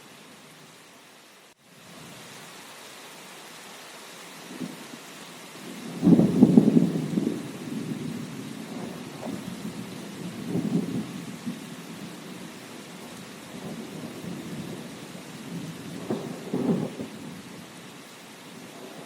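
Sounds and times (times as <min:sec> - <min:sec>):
steady rain: 0:00.0 - 0:19.0
thunder rumbling: 0:05.7 - 0:17.6.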